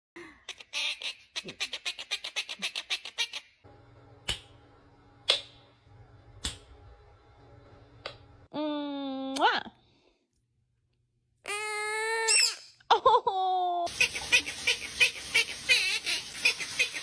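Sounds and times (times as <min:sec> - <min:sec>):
parrot clicking chatter: 0:00.6 - 0:03.4, 0:13.9 - 0:17.0
sharp single clicks: 0:04.2 - 0:04.5.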